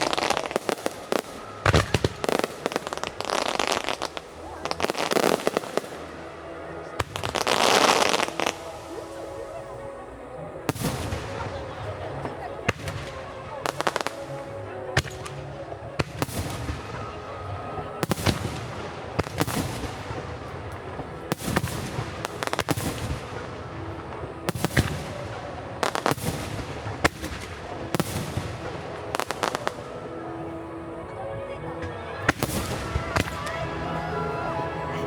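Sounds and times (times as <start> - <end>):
fireworks bursting bangs: 0.0 - 9.5, 10.7 - 30.0, 31.8 - 35.0
recorded music playing: 29.0 - 35.0.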